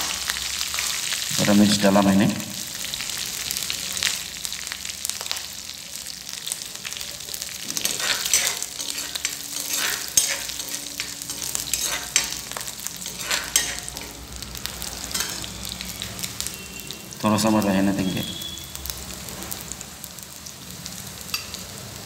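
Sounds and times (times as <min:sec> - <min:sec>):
spices sizzling in hot oil: 0:00.0 - 0:22.0
spatula scraping and tapping pan: 0:07.7 - 0:14.3, 0:15.1 - 0:15.6.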